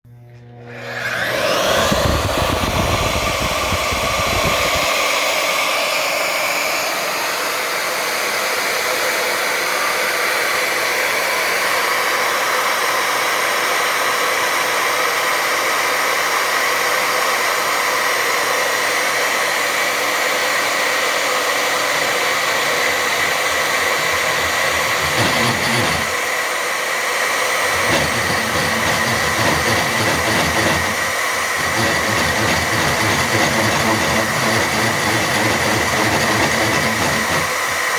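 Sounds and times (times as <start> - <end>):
drill press motor whine: 0.1 - 7.7, 19.0 - 37.9.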